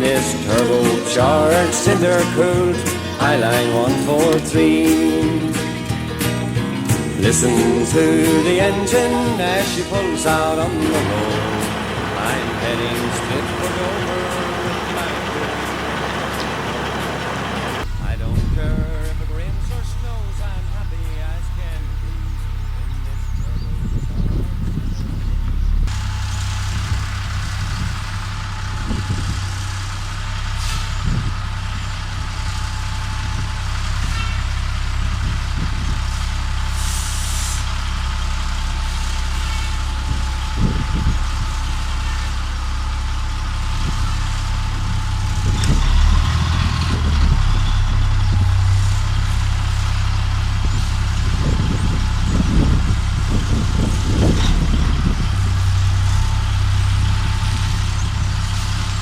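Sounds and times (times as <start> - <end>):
truck diesel engine running: 0.0 - 59.0
air brakes hiss: 36.7 - 37.7.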